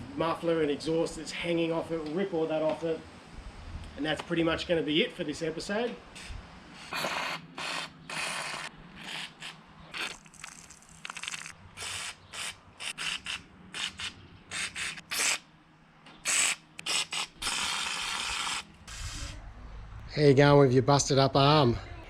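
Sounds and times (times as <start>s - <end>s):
aerosol spray hissing: 6.2s - 10.2s, 11.8s - 15.4s, 16.2s - 19.4s.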